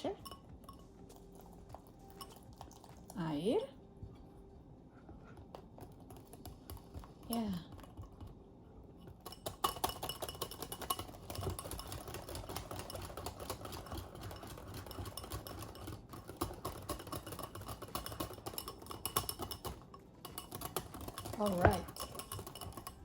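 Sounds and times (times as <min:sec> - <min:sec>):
utensil beating batter in bowl: 0:05.4 - 0:23.0.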